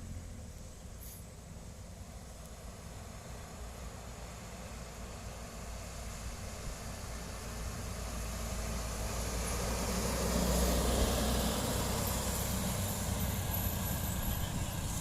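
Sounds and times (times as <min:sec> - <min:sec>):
vehicle passing: 0:07.8 - 0:15.0.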